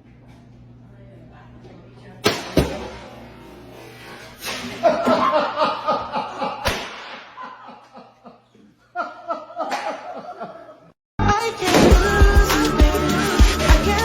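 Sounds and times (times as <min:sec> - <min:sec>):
sharp pop: 0:02.2 - 0:03.0, 0:06.6 - 0:07.3
people laughing: 0:04.6 - 0:10.9.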